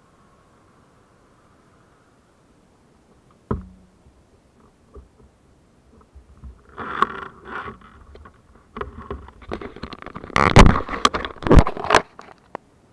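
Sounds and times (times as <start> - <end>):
rustling and scraping: 4.6 - 12.6.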